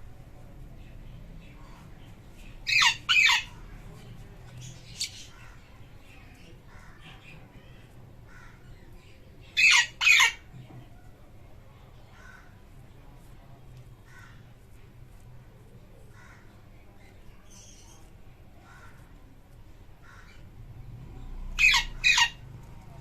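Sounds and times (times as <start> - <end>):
parrot squawks: 2.7 - 3.5, 9.6 - 10.4, 21.6 - 22.4
parrot chirps: 21.6 - 22.4.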